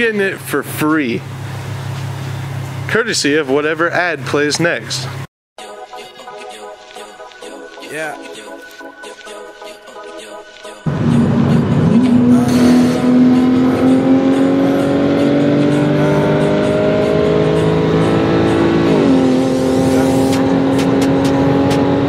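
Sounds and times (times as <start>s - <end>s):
car engine accelerating: 10.8s - 22.0s.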